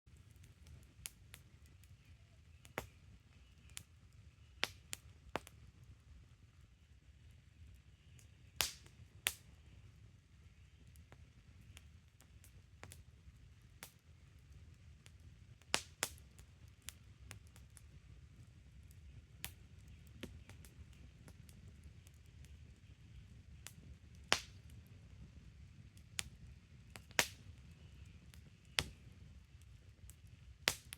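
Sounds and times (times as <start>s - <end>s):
fire crackling and popping: 0.1s - 30.9s
low rumble of flames: 0.1s - 30.9s
loud fire pops: 8.6s - 9.4s, 19.0s - 22.6s, 23.5s - 24.9s, 25.8s - 29.2s, 30.1s - 30.9s.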